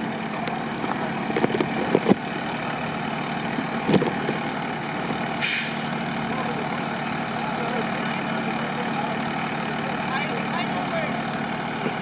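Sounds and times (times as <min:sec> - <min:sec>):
vehicle engine idling: 0:00.0 - 0:12.0
short hiss: 0:05.4 - 0:05.8.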